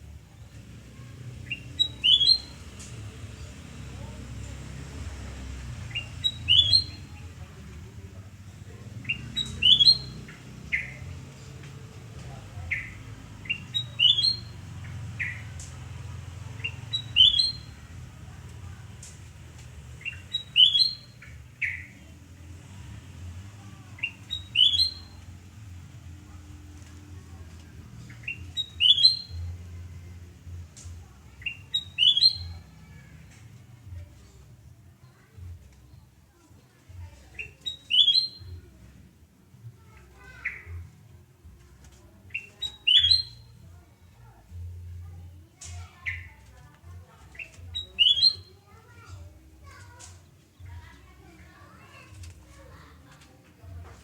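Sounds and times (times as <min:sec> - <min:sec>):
bulbul singing whistled notes: 0:01.5 - 0:02.6, 0:05.9 - 0:07.1, 0:09.0 - 0:11.0, 0:12.7 - 0:15.4, 0:16.6 - 0:17.8, 0:20.0 - 0:22.0, 0:24.0 - 0:25.2, 0:28.1 - 0:29.4, 0:31.4 - 0:32.6, 0:37.4 - 0:38.6, 0:42.3 - 0:43.6, 0:47.3 - 0:48.5.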